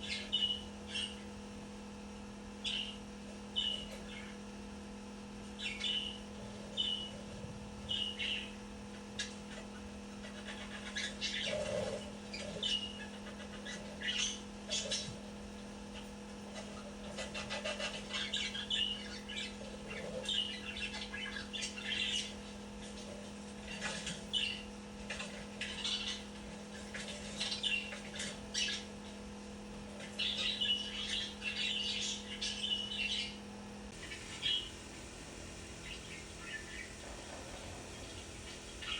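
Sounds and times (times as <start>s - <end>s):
steady low hum: 0.0s - 38.9s
budgerigar chirping: 3.6s - 4.4s, 5.6s - 6.2s, 7.9s - 8.6s, 9.2s - 15.2s, 16.6s - 22.4s, 25.4s - 26.3s, 26.9s - 28.9s, 30.1s - 33.4s, 34.0s - 34.8s, 35.8s - 38.9s
budgerigar chirps: 34.0s - 34.7s.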